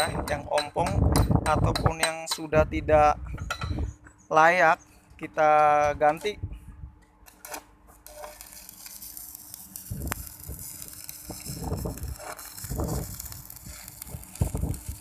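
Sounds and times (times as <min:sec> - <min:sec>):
arc welding hiss: 0:08.1 - 0:15.0.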